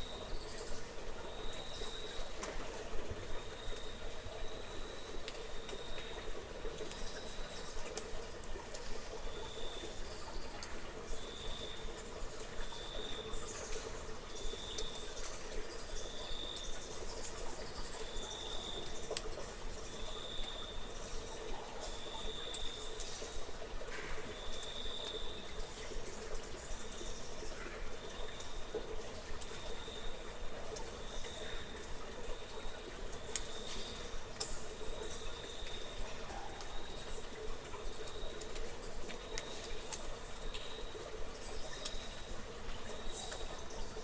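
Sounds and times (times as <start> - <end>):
faint clicks and ticks: 5.2 - 9.2, 18.6 - 44.0.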